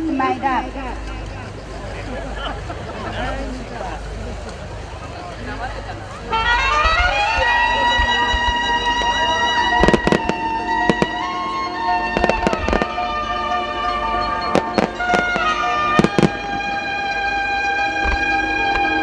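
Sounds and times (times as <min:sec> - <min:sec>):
music of long held notes: 0:05.2 - 0:19.0
fireworks bursting with bangs: 0:06.8 - 0:19.0.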